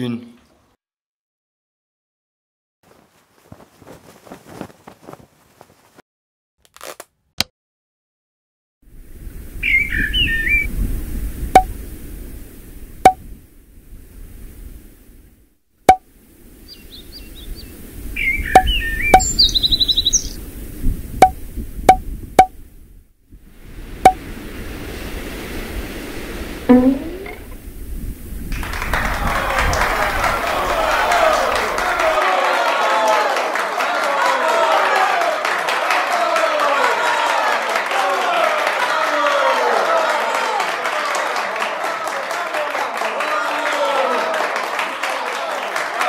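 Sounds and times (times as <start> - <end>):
birds chirping: 9.6 - 10.7, 16.6 - 20.4.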